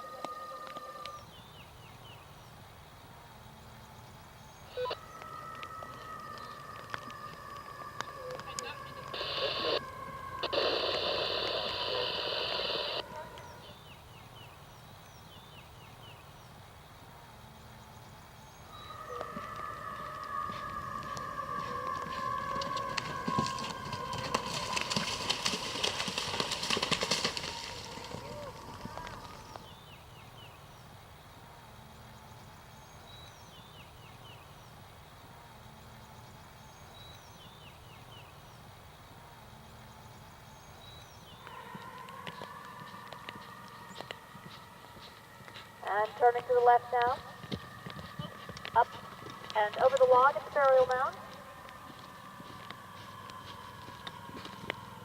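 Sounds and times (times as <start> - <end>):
birds chirping: 0.0 - 55.0
low outdoor hum: 0.0 - 55.0
steady multi-pitched whine: 7.5 - 13.1.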